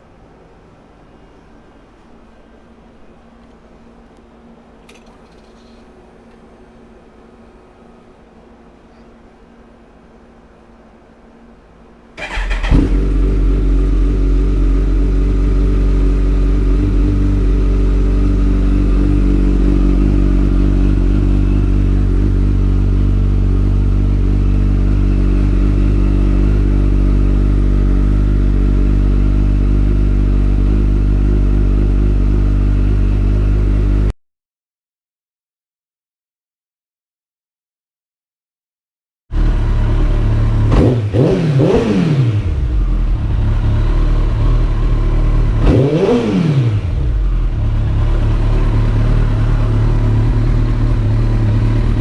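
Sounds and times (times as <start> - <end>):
motorcycle engine idling: 11.3 - 34.1, 39.4 - 52.0.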